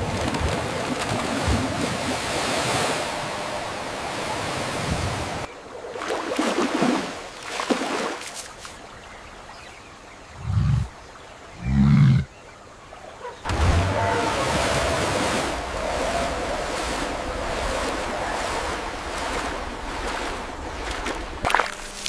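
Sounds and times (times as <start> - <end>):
rushing water: 0.0 - 11.6, 12.2 - 22.0
low animal calls: 13.2 - 19.0.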